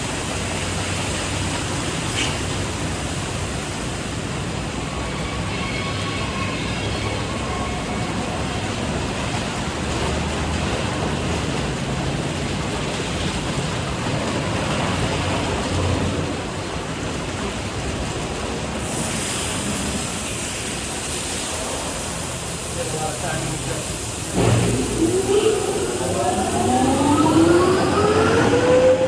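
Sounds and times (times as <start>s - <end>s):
water spray rushing: 0.0s - 4.2s, 18.7s - 29.0s
hissing high spray: 18.8s - 29.0s
low motor hum: 24.4s - 29.0s.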